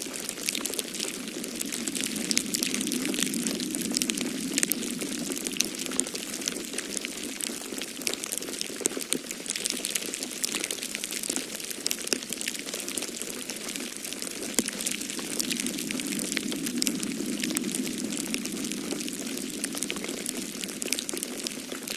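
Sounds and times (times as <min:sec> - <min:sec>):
wood fire crackling and popping: 0:00.0 - 0:21.9
wind rushing: 0:00.2 - 0:07.4, 0:14.4 - 0:21.9.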